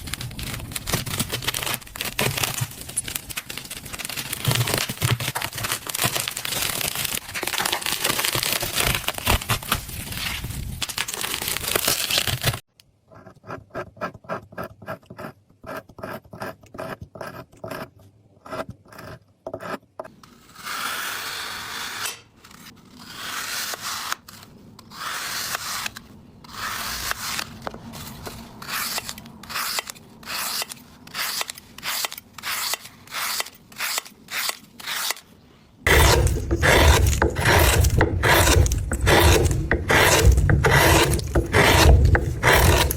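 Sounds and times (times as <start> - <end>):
scraping and rubbing strokes: 35.8 - 42.9.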